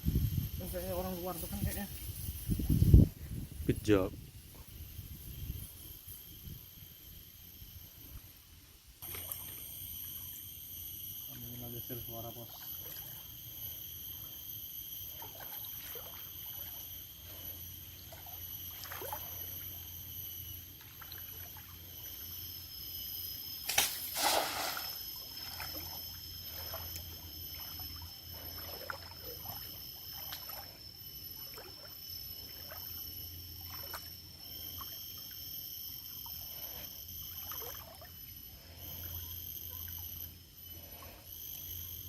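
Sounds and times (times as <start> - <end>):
river water sloshing around boat: 9.0 - 10.3, 12.4 - 13.3, 15.0 - 22.5, 23.1 - 39.2
water splashes: 23.7 - 26.0.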